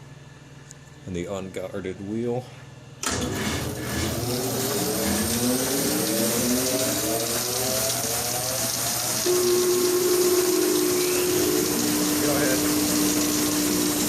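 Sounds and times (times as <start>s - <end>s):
bandsaw spinning up: 3.0s - 9.4s.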